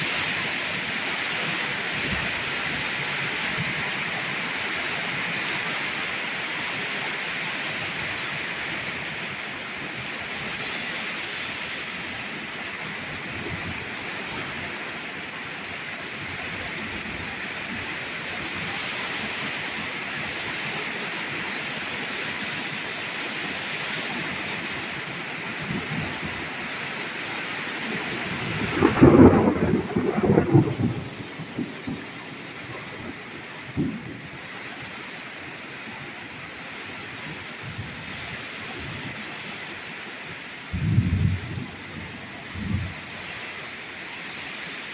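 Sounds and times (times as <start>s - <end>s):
torrential rain pouring: 0.0s - 44.9s
thunder rumbling: 27.7s - 34.5s, 40.7s - 43.5s.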